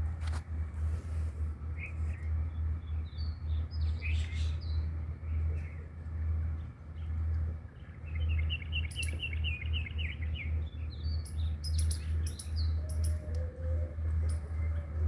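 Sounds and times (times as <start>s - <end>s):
small birds chirping: 1.8s - 6.0s, 6.6s - 14.9s.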